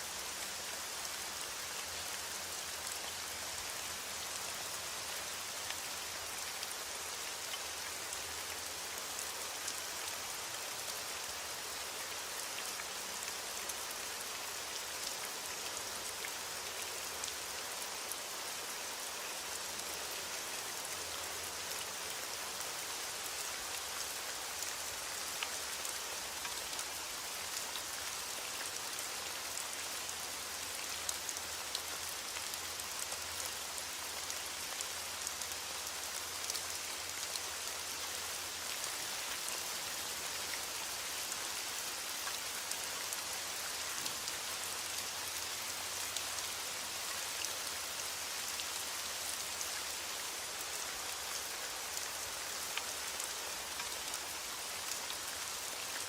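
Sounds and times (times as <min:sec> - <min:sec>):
steady rain hiss: 0:00.0 - 0:56.0
raindrops ticking on a surface: 0:23.3 - 0:46.6.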